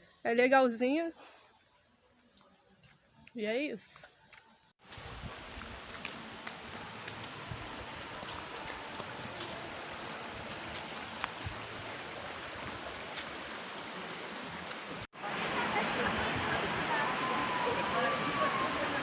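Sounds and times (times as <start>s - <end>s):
water rushing down a rocky stream: 4.8s - 19.0s.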